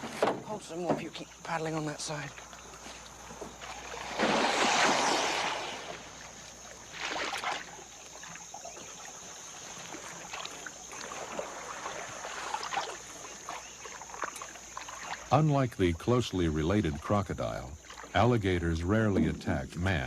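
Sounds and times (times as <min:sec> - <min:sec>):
paddle swishing through water: 0:02.3 - 0:20.0
water dripping and crackling: 0:06.0 - 0:20.0.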